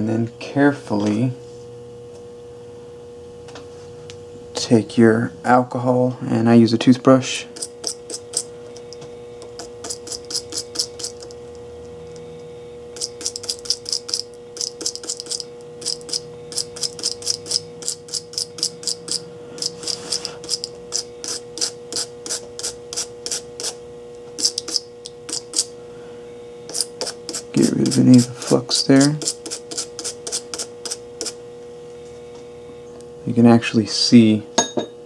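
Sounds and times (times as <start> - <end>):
toothbrush scrubbing: 7.6 - 8.5, 9.5 - 11.4, 13.0 - 23.8, 24.4 - 25.7, 26.7 - 31.4.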